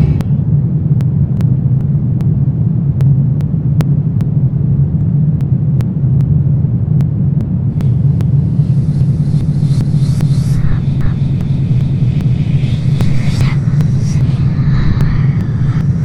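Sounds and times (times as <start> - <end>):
dark ambient rumble: 0.0 - 16.0.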